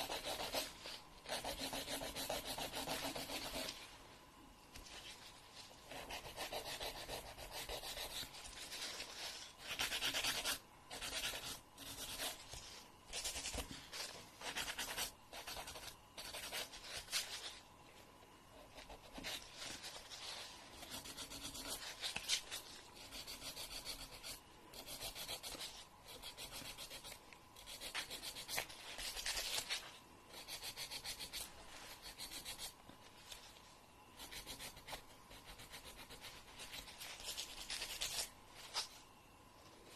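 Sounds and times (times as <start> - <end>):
nail file rasping: 0.0 - 0.7, 1.3 - 3.7, 6.0 - 8.6, 9.6 - 12.4, 20.8 - 29.7, 30.3 - 32.8, 34.2 - 38.3.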